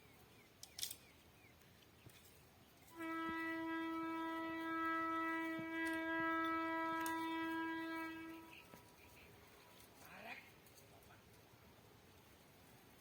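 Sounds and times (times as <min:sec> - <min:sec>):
locomotive air horn long note: 0:02.9 - 0:08.8.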